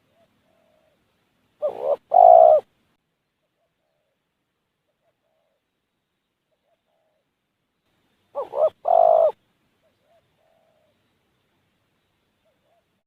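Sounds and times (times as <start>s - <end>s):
close loud dove coo: 0.0s - 1.0s, 1.6s - 2.7s, 3.4s - 4.2s, 4.9s - 5.7s, 6.5s - 7.3s, 8.3s - 11.0s, 12.4s - 13.0s
distant doves cooing: 0.0s - 2.7s, 3.4s - 5.7s, 6.5s - 7.4s, 8.3s - 11.2s, 12.3s - 13.0s.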